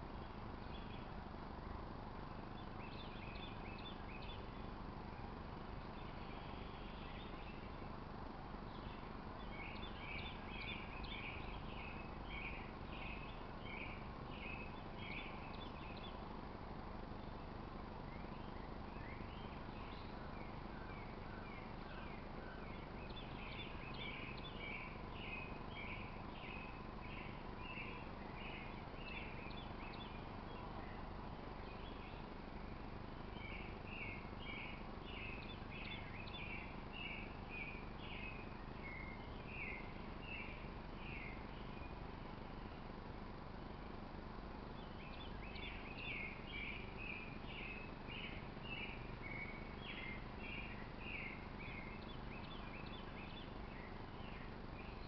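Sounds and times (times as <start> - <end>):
steady background hiss: 0.0 - 55.0
bird chirping: 2.1 - 16.4, 17.0 - 55.0.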